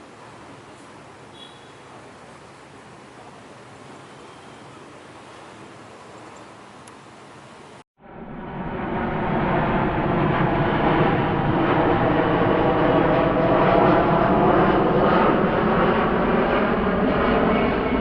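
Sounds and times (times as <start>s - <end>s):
jet airliner passing: 8.0s - 18.0s.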